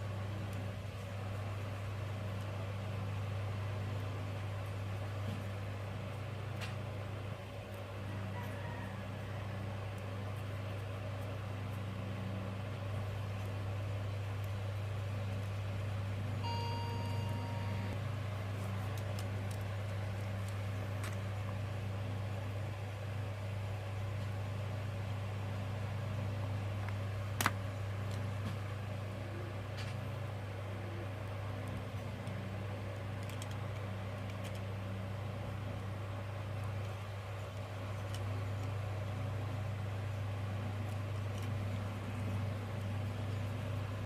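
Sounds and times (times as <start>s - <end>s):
low hum: 9.0s - 44.0s
short beep: 16.4s - 18.0s.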